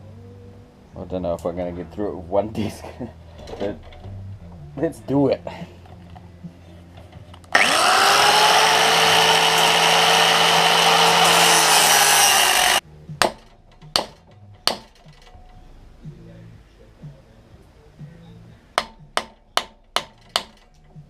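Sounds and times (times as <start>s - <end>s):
angle grinder cutting steel: 7.5s - 12.8s
sharp knocks: 13.2s - 15.1s.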